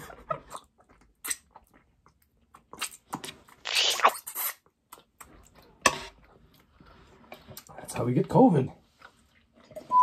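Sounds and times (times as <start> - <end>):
chewing and biting: 0.0 - 5.8.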